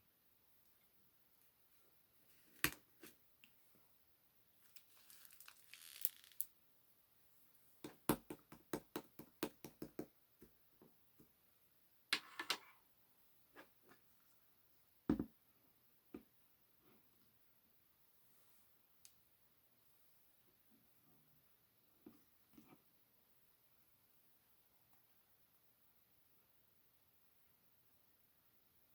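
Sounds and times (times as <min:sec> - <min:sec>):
crinkling: 0:04.6 - 0:06.5
small objects tapping and clicking: 0:04.7 - 0:06.5.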